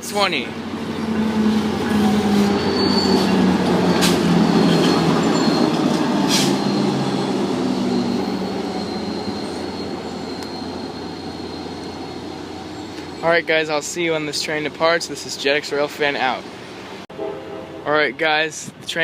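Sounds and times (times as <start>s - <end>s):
train wheels and engine rumble: 0.0s - 17.8s
thin high squeal: 1.8s - 13.3s.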